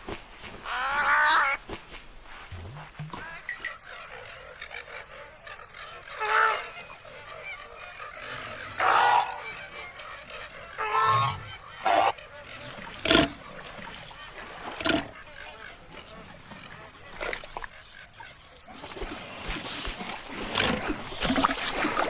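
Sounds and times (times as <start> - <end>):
animal calling: 2.6 - 16.9.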